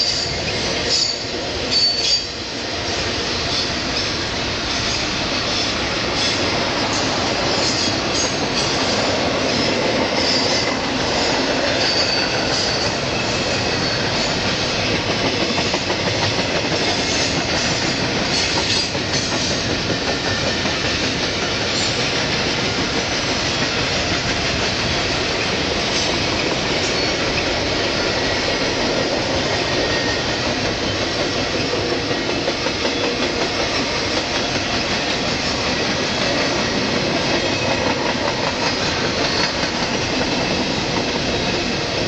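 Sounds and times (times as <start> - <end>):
high-pitched wheel squeal: 0.0 - 2.4, 11.8 - 13.0
steel wheels on rail: 0.0 - 42.0.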